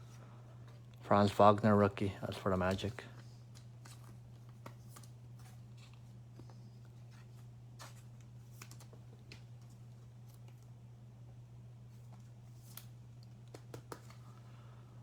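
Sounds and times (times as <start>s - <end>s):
steady low hum: 0.0s - 15.0s
trading cards tapping and sliding: 12.6s - 14.5s.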